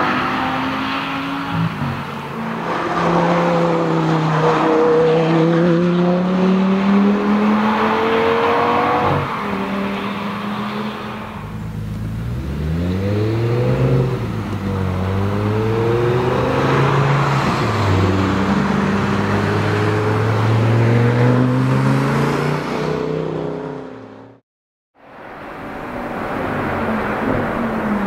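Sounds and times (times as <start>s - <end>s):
sports car engine accelerating: 11.7s - 24.4s.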